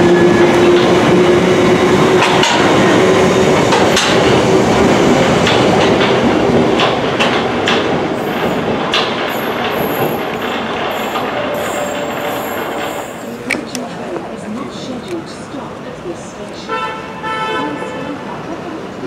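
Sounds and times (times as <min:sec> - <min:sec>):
train running on tracks: 0:00.0 - 0:19.0
wheels clicking over rail joints: 0:05.4 - 0:14.3.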